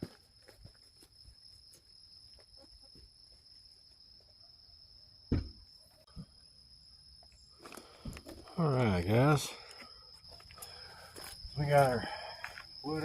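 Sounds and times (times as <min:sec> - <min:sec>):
insects droning: 0:00.0 - 0:13.0
heavy thump: 0:05.3 - 0:05.6.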